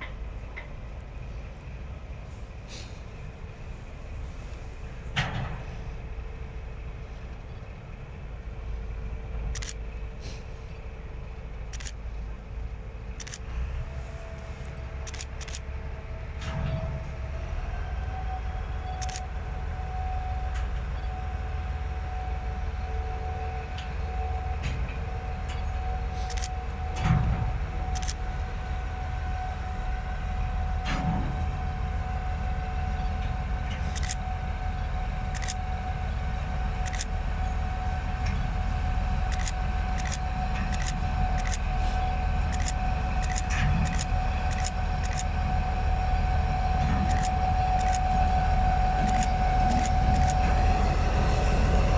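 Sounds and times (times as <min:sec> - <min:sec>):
constant whine: 0:00.0 - 0:51.9
train rumble: 0:00.0 - 0:51.9
sharp clicks: 0:15.1 - 0:15.6, 0:18.9 - 0:19.3, 0:26.2 - 0:26.5, 0:28.0 - 0:28.2, 0:39.3 - 0:41.6, 0:42.5 - 0:45.3, 0:47.1 - 0:48.0.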